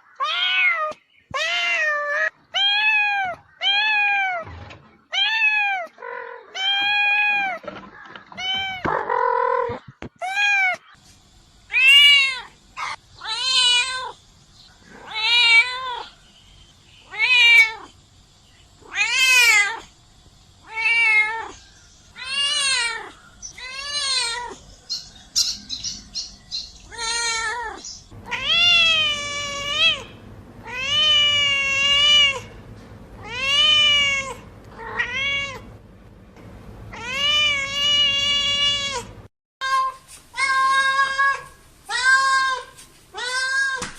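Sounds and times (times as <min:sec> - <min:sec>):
cat meowing: 0:00.0 - 0:04.5, 0:14.9 - 0:16.2, 0:26.9 - 0:32.5, 0:33.2 - 0:35.7, 0:36.9 - 0:42.6.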